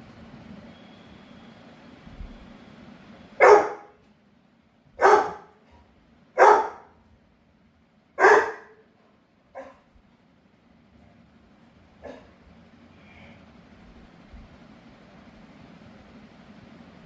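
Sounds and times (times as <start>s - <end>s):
dog barking: 3.4s - 4.0s, 5.0s - 5.6s, 6.4s - 7.0s, 8.2s - 8.8s, 9.6s - 9.9s, 12.0s - 12.3s.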